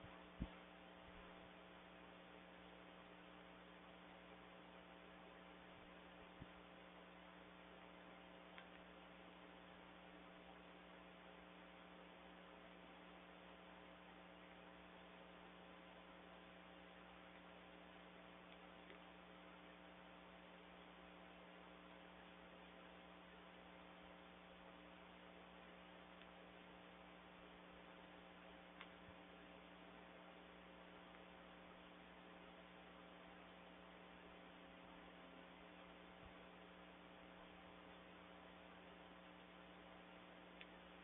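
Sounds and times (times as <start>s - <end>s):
faint electrical hum with hiss: 0.0s - 41.0s
faint ticks: 8.5s - 9.0s, 26.1s - 26.4s, 28.7s - 29.1s, 40.4s - 41.0s.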